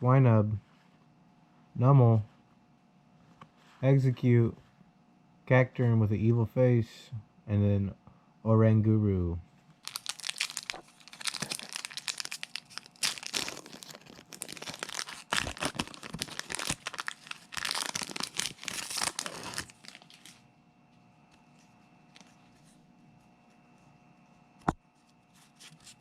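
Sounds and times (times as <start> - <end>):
foil wrapper tearing and crinkling: 9.8 - 20.4.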